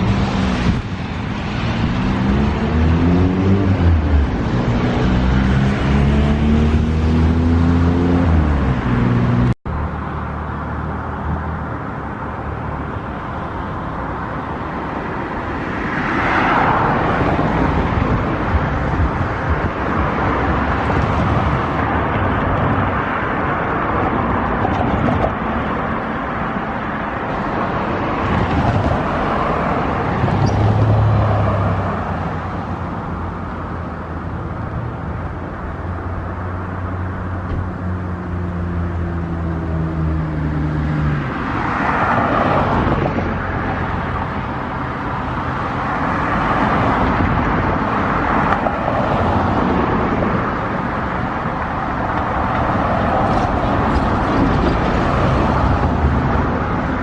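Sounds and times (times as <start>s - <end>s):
vehicle passing: 0.0s - 11.6s
vehicle noise: 0.0s - 57.0s.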